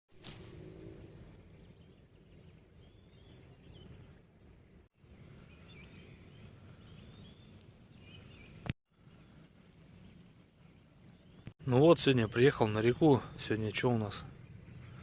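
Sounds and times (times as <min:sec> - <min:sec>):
low outdoor rumble: 0:00.2 - 0:11.5
small birds chirping: 0:00.2 - 0:15.0.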